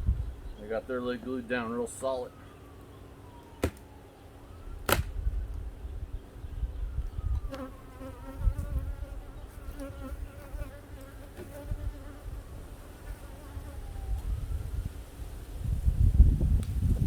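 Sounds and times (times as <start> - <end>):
bees buzzing: 7.5 - 14.0.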